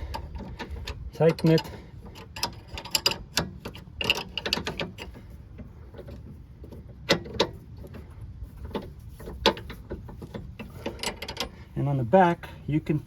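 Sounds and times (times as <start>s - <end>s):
sharp metal clicks: 0.0s - 6.2s.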